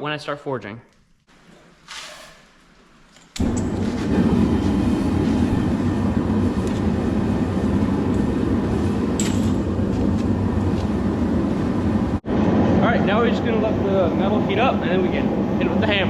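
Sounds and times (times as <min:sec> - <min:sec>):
forge rushing noise: 0:03.4 - 0:16.0.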